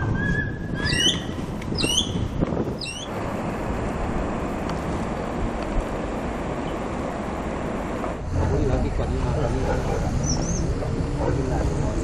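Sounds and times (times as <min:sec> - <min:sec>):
bird short high calls: 0:00.2 - 0:02.2, 0:02.8 - 0:03.1.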